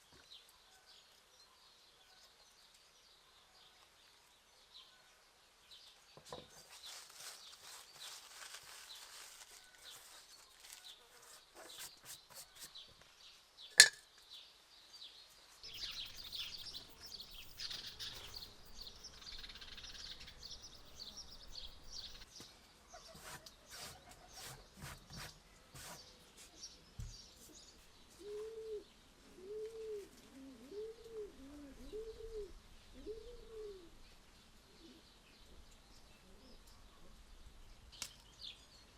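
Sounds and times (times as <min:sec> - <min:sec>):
songbirds chirping: 0:00.0 - 0:38.9
dove cooing: 0:28.2 - 0:34.0.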